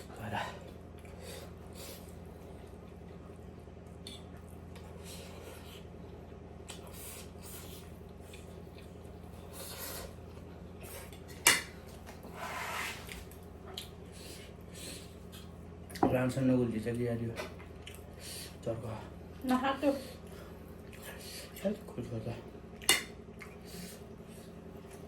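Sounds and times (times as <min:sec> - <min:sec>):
soft eating noises: 0:00.0 - 0:25.0
steady low hum: 0:00.0 - 0:25.0.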